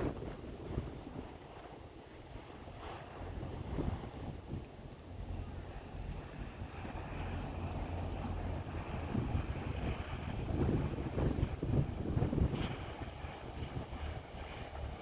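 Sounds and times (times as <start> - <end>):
boat engine humming: 0.0 - 15.0
wind buffeting microphone: 0.0 - 15.0.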